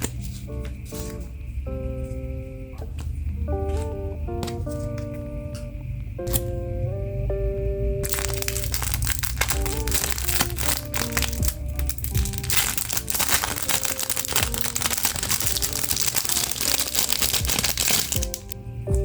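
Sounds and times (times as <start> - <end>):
background music: 0.0 - 19.0
plastic packaging crinkling: 8.0 - 18.6.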